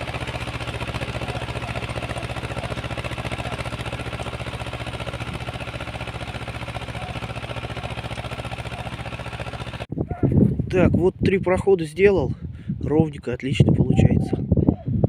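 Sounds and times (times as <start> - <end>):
rotary tiller in soil: 0.0 - 9.9
tractor engine running: 0.0 - 9.9.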